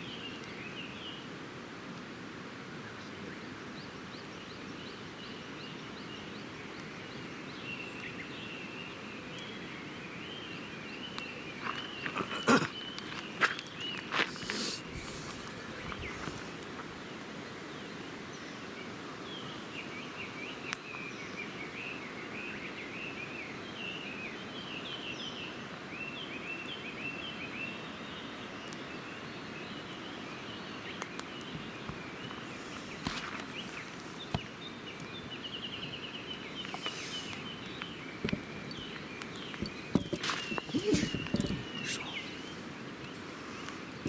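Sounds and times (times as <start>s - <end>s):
small birds chirping: 0.0s - 1.3s, 2.8s - 16.8s, 17.7s - 44.0s
campfire popping: 6.4s - 16.9s, 31.0s - 44.0s
low outdoor rush: 9.0s - 17.6s, 30.8s - 44.0s.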